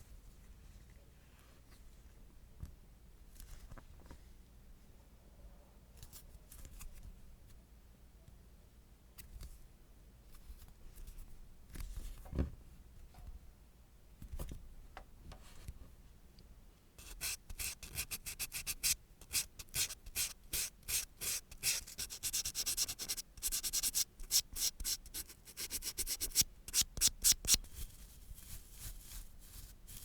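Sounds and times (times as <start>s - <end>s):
nail file rubbing on nail: 17.0s - 30.0s.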